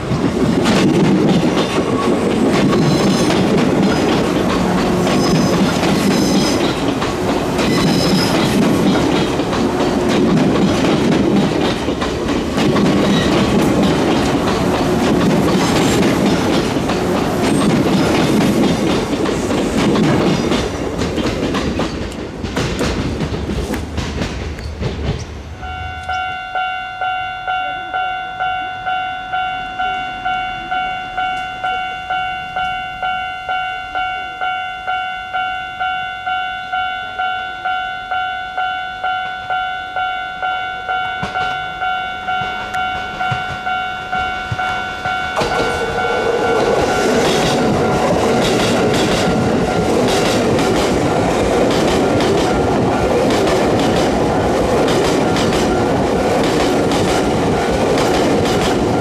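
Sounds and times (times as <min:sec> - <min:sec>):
train wheels clacking: 0:00.0 - 0:26.2, 0:41.0 - 0:59.0
electric train passing: 0:00.0 - 0:59.0
level crossing bell ringing: 0:25.6 - 0:50.2.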